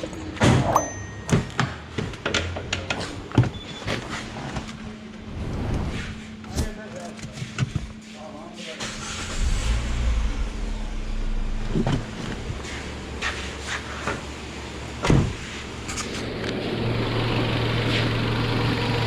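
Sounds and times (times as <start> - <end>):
car engine starting and idling: 8.8 - 19.0.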